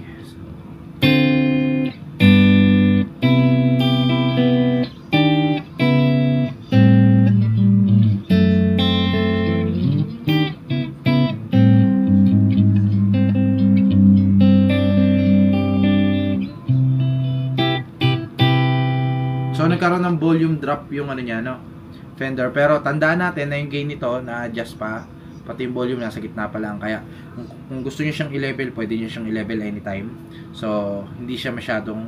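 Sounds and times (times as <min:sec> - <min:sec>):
electric guitar chords and phrases: 0:00.8 - 0:20.6.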